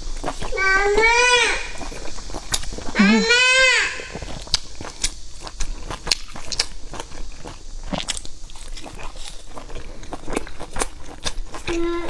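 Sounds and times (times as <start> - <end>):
biting and chewing: 0.0 - 12.0
sharp mouth clicks and smacks: 4.2 - 11.8.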